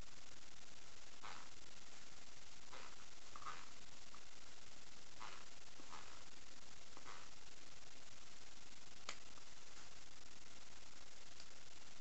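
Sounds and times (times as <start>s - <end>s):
recording hiss: 0.0s - 12.0s.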